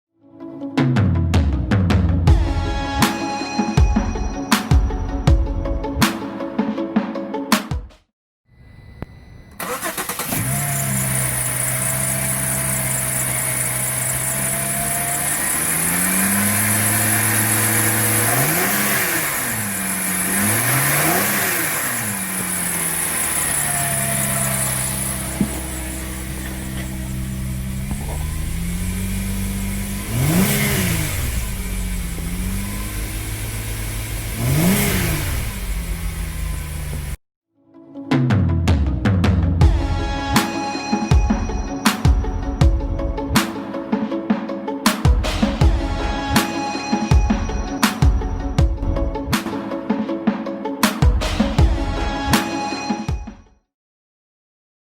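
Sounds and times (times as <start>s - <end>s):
car engine starting and idling: 9.5s - 37.2s
car engine revving: 9.6s - 37.2s.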